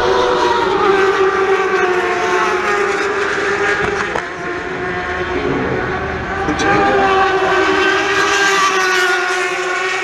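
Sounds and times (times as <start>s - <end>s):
racing motorcycle engines high revs: 0.0s - 10.0s.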